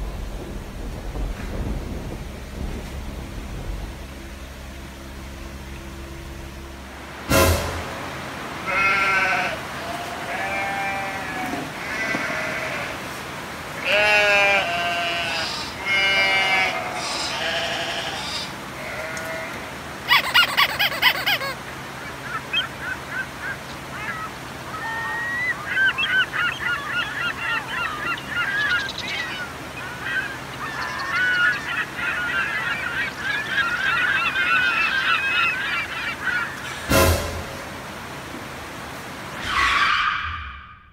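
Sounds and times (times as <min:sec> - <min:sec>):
animal calls: 0:20.1 - 0:36.9, 0:39.4 - 0:40.9.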